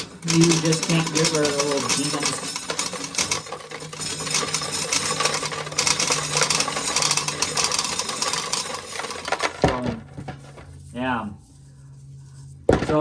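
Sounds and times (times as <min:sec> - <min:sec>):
corn kernels rattling: 0:00.0 - 0:09.8
low mechanical hum: 0:00.0 - 0:13.0.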